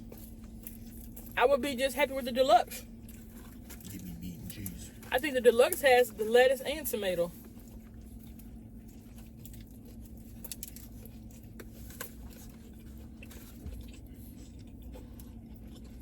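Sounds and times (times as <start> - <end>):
low electrical hum: 0.0 - 16.0
person chewing food: 2.9 - 5.1, 7.4 - 16.0.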